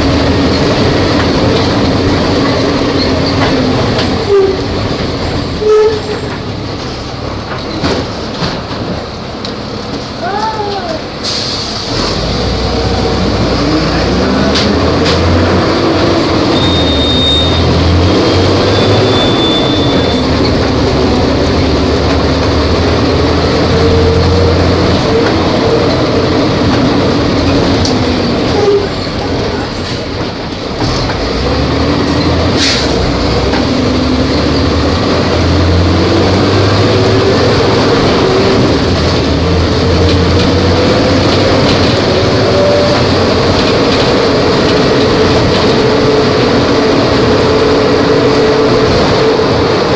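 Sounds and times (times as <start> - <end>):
bus diesel engine running: 0.0 - 49.9.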